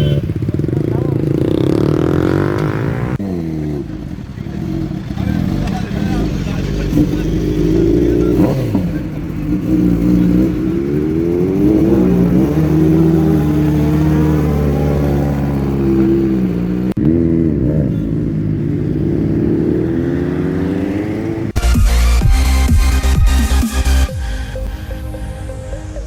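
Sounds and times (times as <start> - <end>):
motorcycle engine revving: 0.0 - 24.1
music: 21.6 - 26.0.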